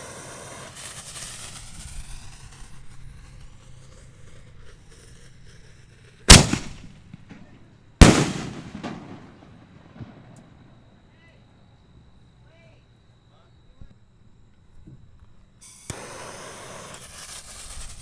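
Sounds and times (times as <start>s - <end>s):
firework shell bangs with echo: 6.3s - 10.4s.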